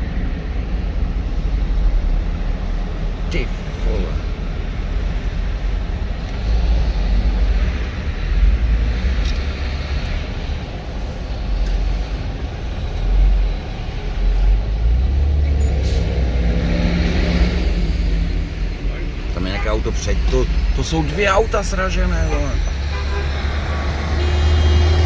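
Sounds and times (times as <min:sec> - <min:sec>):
highway traffic road noise: 0:00.0 - 0:25.0
engine pitch rising: 0:14.9 - 0:25.0.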